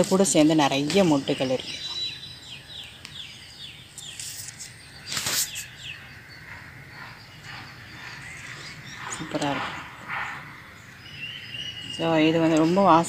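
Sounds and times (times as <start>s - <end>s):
bird calling: 0.0s - 13.0s
brief rustle: 4.0s - 5.7s.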